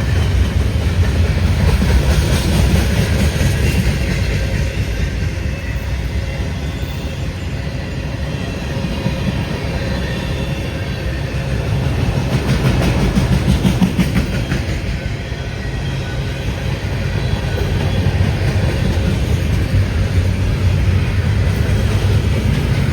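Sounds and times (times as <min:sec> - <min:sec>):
freight train rolling past: 0:00.0 - 0:22.9.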